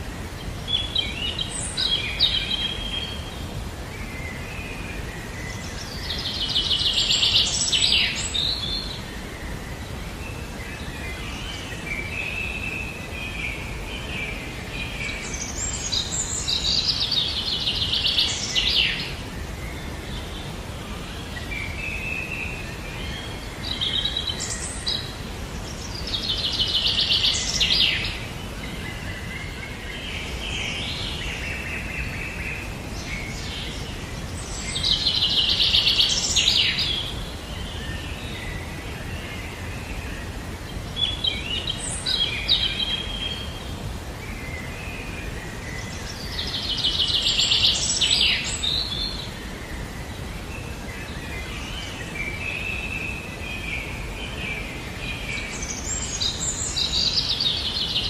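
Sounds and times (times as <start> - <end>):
steady low background noise: 0.0 - 58.0.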